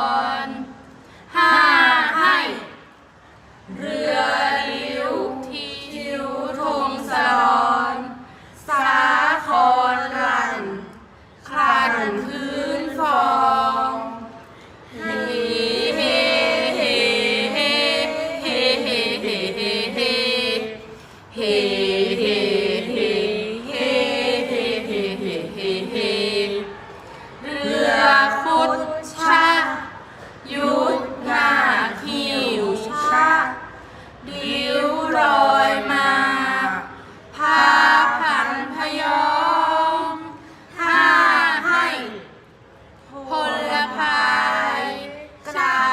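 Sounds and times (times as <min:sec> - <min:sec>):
women chanting unaccompanied: 0:00.0 - 0:02.9, 0:03.7 - 0:42.4, 0:43.1 - 0:45.9.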